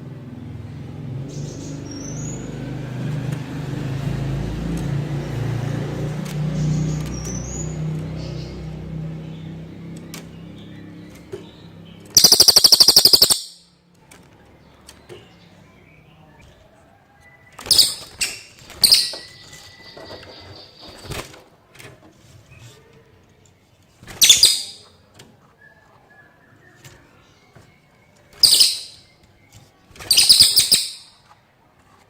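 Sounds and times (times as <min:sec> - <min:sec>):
songbird singing: 0:00.8 - 0:02.8, 0:06.4 - 0:21.2, 0:24.2 - 0:31.2.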